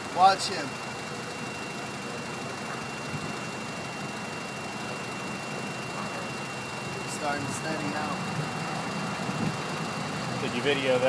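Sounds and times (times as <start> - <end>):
car engine idling: 0.0 - 11.0
thin high whine: 2.6 - 11.0.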